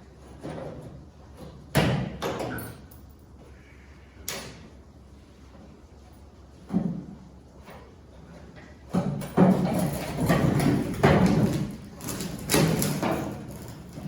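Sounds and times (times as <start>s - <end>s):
rattling knocks: 9.2s - 14.0s.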